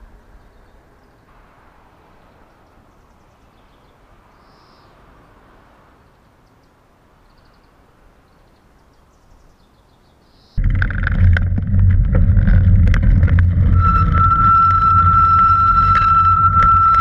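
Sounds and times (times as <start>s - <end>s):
soft steady hiss: 0.0s - 10.6s
small birds chirping: 0.2s - 1.3s, 2.1s - 5.1s, 6.0s - 10.6s.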